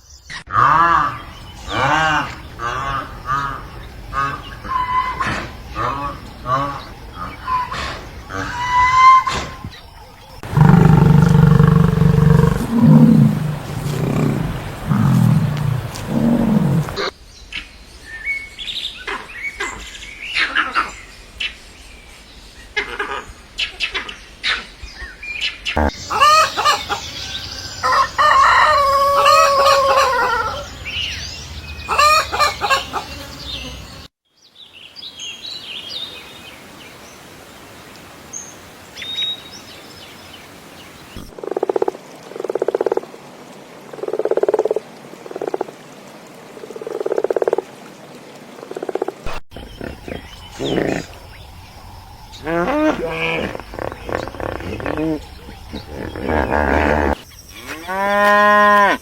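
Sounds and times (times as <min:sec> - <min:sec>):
frog croaking: 0:00.5 - 0:09.6, 0:10.4 - 0:17.1, 0:41.2 - 0:43.2, 0:43.8 - 0:45.8, 0:46.6 - 0:47.7, 0:48.6 - 0:57.2
rooster crowing: 0:27.8 - 0:30.7.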